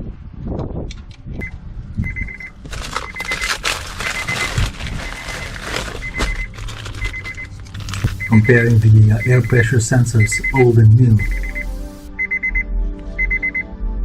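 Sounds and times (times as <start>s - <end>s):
rapid electronic beeping: 2.1s - 12.6s.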